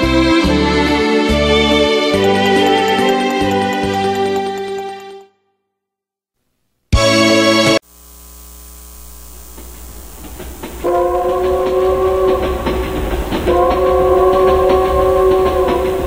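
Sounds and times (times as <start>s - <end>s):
train rumbling: 9.6s - 16.0s
train horn blast: 10.7s - 16.0s.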